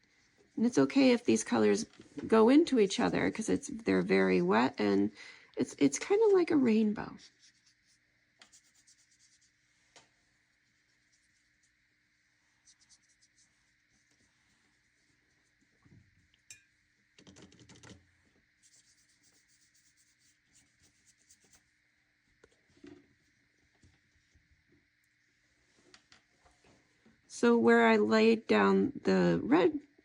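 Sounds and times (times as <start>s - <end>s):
wet brush scratching on paper: 6.0s - 15.8s, 18.6s - 21.8s.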